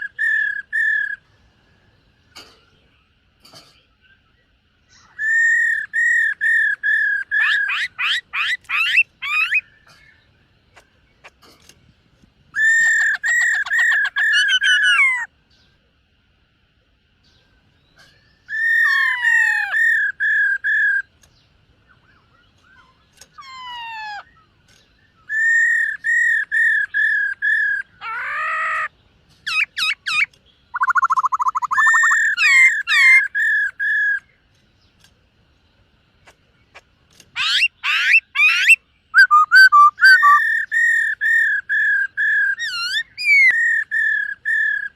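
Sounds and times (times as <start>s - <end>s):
bird singing whistled phrases: 22.0s - 28.9s, 29.5s - 34.3s, 37.4s - 44.9s.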